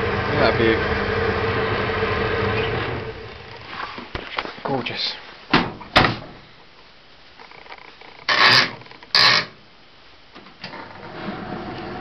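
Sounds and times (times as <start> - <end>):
faint steady background noise: 3.0 - 12.0.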